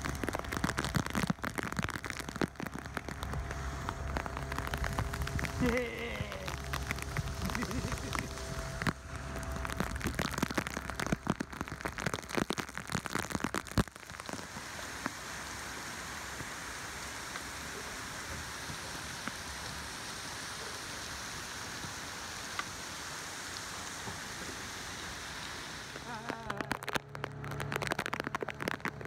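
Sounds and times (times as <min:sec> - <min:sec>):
heavy rain on water: 0:00.0 - 0:29.0
loud knocks and crackles: 0:26.7 - 0:29.0.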